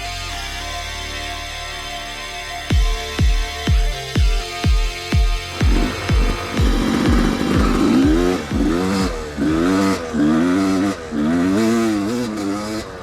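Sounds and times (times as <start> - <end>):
dirt bike engine revving: 1.8 - 13.0
electronic music with kick drum: 1.9 - 10.6.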